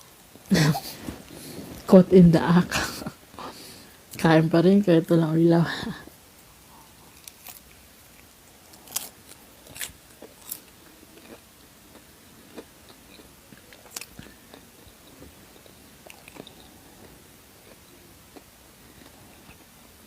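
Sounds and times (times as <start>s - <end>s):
quiet chewing: 6.4s - 19.8s
person crunching food: 6.9s - 19.6s.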